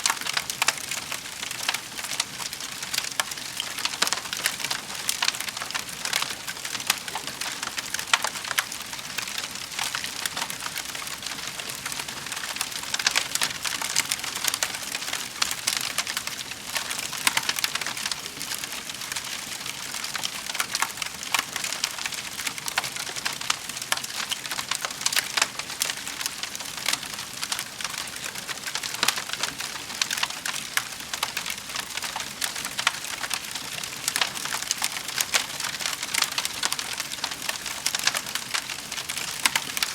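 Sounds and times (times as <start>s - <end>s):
fireplace fire crackling: 0.0s - 39.9s.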